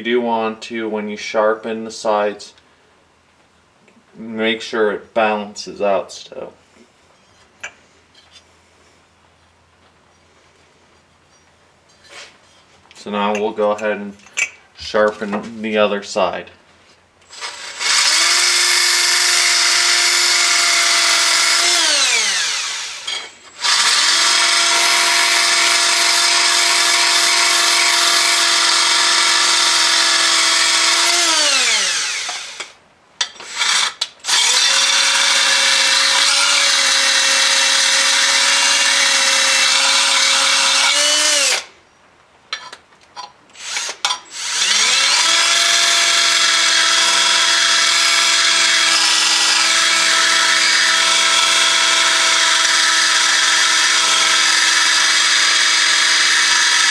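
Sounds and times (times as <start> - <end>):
power grinder whining and grinding: 19.2 - 32.7, 33.4 - 41.7, 43.6 - 56.9.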